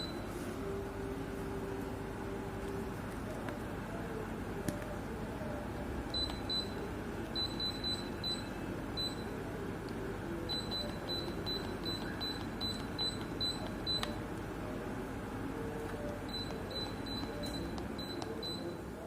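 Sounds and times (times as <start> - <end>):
air conditioner running hum: 0.0 - 19.0.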